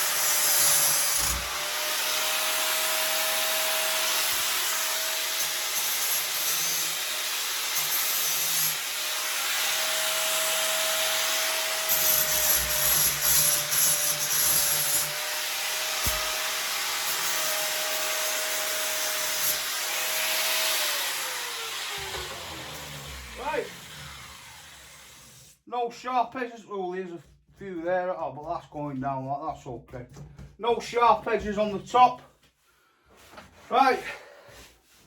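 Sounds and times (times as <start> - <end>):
grinder sanding metal: 0.1 - 23.9.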